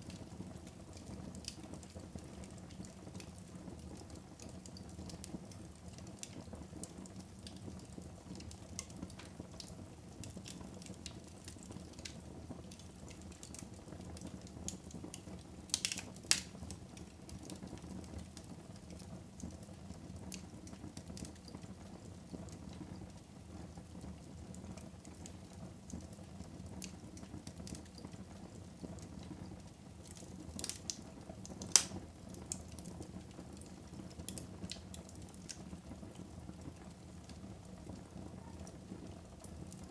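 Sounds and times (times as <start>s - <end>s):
wood fire crackling: 0.0s - 39.9s
sharp pops of fire: 10.2s - 18.2s, 30.0s - 33.0s.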